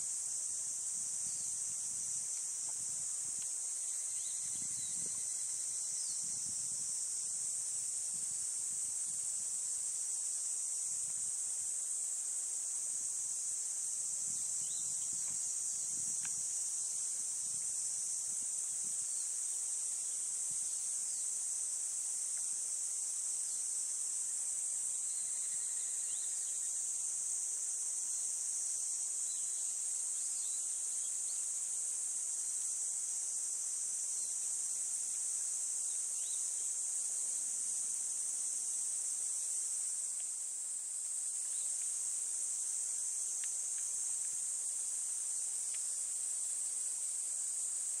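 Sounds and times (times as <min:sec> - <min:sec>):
high-pitched insect chorus: 0:00.0 - 0:48.0.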